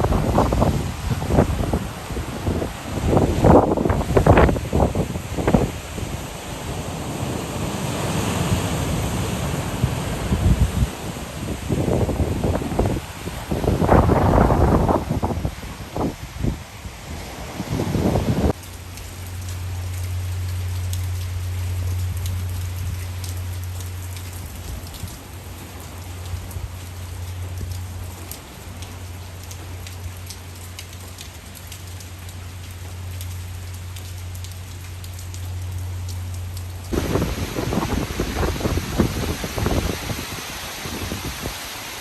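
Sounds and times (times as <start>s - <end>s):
rain pattering on hard surface: 0.0s - 6.9s, 18.5s - 42.0s.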